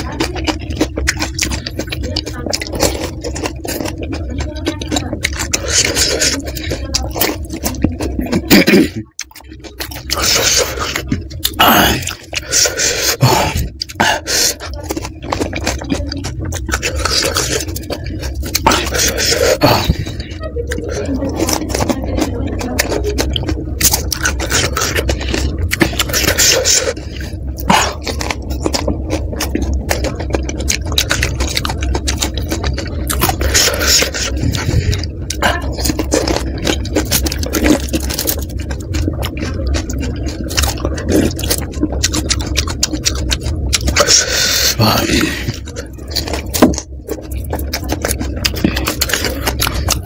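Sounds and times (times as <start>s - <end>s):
chewing and crunching crisp food: 0.0s - 50.0s
wet mouth sounds: 0.0s - 50.0s.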